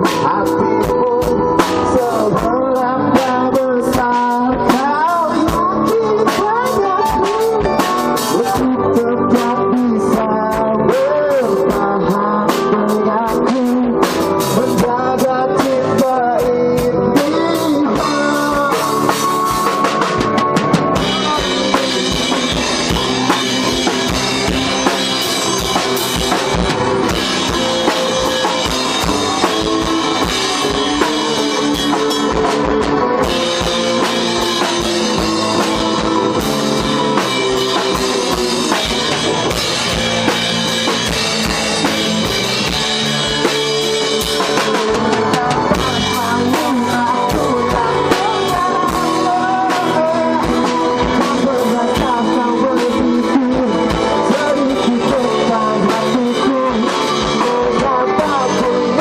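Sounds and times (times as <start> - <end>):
pop rock band playing: 0.0 - 59.0
wavering lead melody: 16.5 - 59.0.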